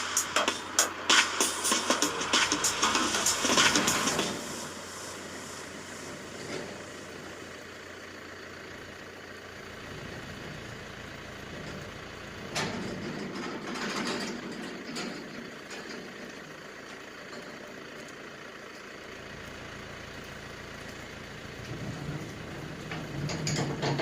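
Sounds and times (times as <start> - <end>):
burst of music: 0.0 - 5.9
sudden loud noise: 0.0 - 7.1
vehicle engine idling: 0.0 - 24.0.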